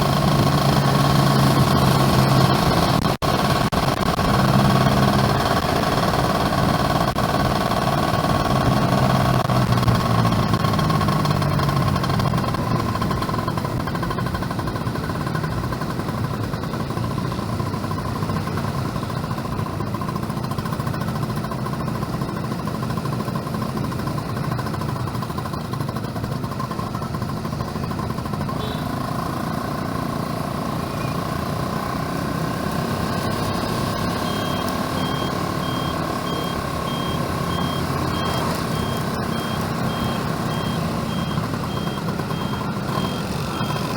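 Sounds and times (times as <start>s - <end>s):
road and wind noise: 0.0s - 43.9s
two-stroke motorcycle engine: 0.0s - 43.9s
vehicle reversing beeper: 33.0s - 43.9s.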